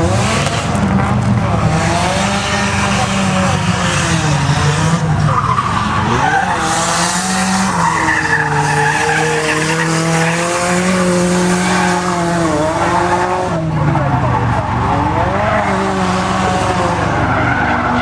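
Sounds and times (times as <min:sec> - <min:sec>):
car engine revving: 0:00.0 - 0:18.0
tyres screeching: 0:05.2 - 0:12.6.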